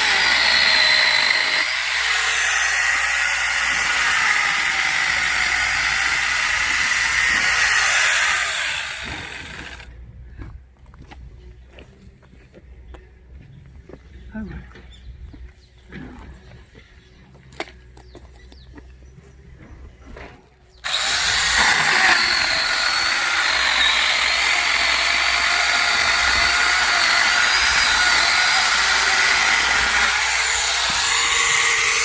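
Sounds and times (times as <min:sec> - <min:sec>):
electric chainsaw whining: 0:00.0 - 0:09.9, 0:20.8 - 0:32.0.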